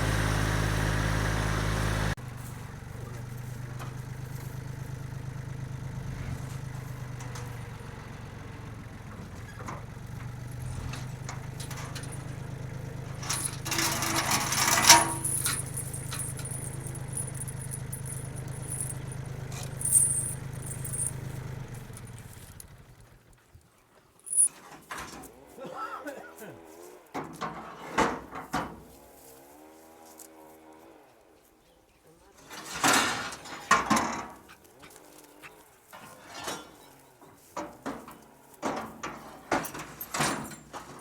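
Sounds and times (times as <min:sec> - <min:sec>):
tractor diesel engine running: 0:00.0 - 0:23.6, 0:24.3 - 0:24.5
metallic rattles and clinks: 0:10.6 - 0:22.8, 0:24.2 - 0:24.6.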